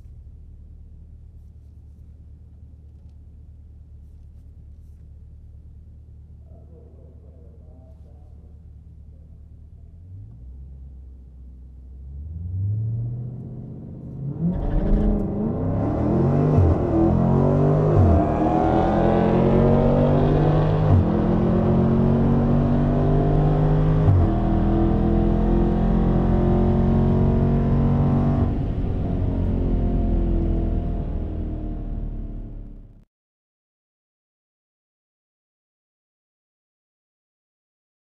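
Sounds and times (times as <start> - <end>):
car engine at full throttle: 8.7 - 33.0.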